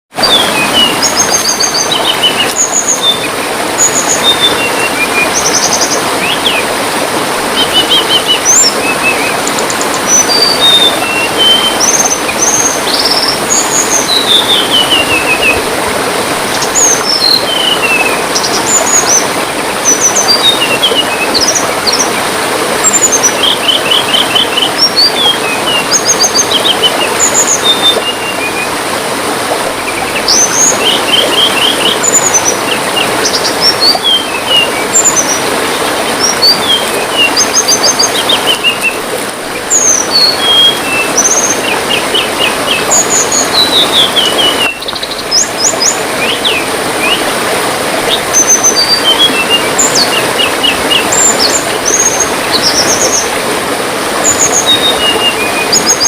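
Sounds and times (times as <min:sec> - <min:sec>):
trickling water: 0:00.1 - 0:56.0.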